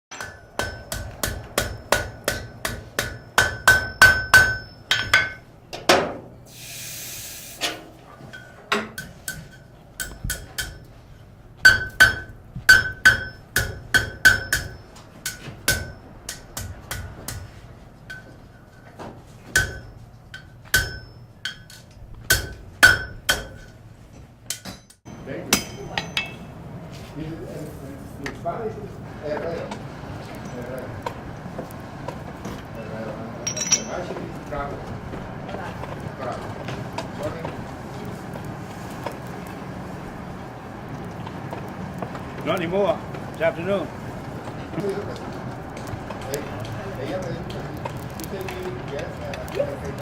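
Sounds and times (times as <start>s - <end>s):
hammer striking metal on anvil: 0.1s - 5.4s, 8.3s - 10.9s, 11.6s - 17.5s, 19.5s - 23.7s, 24.5s - 26.5s, 33.4s - 34.2s
short hiss: 6.5s - 7.8s.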